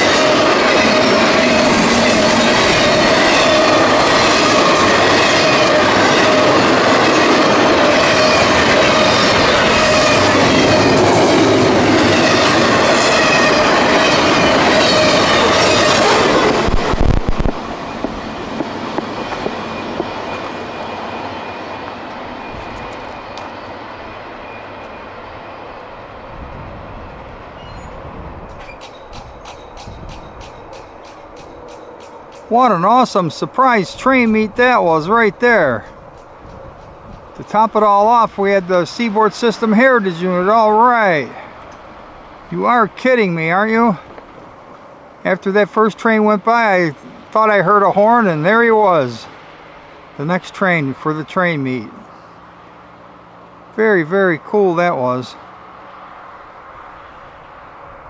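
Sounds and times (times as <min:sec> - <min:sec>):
rush of train wheels on rail: 0:00.0 - 0:40.5, 0:43.7 - 0:45.2
thin steady squeal: 0:19.2 - 0:26.0.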